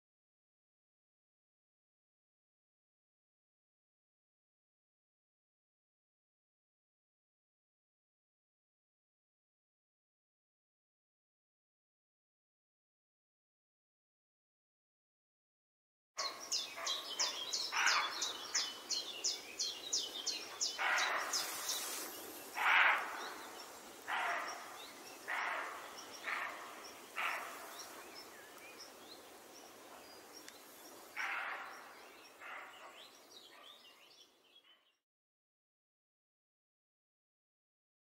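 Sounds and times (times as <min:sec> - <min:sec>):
short harsh bird calls: 0:16.2 - 0:18.8, 0:20.6 - 0:28.0, 0:31.2 - 0:33.8.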